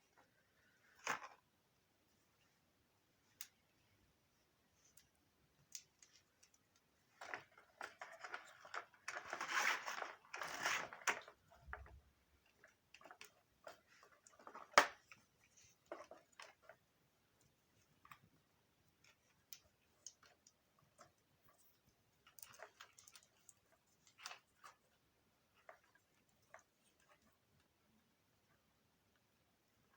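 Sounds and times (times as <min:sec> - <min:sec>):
rustling and scraping: 0:05.8 - 0:18.2.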